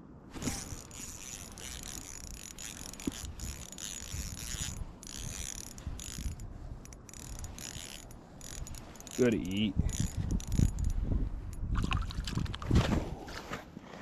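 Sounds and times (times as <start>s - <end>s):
fishing reel being cranked: 0.4s - 11.0s.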